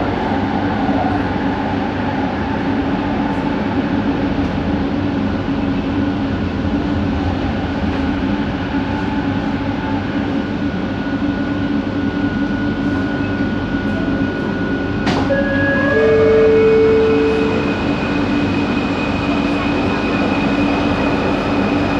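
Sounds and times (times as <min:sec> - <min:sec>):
train rolling rumble: 0:00.0 - 0:21.9
train motor whine: 0:14.4 - 0:21.9.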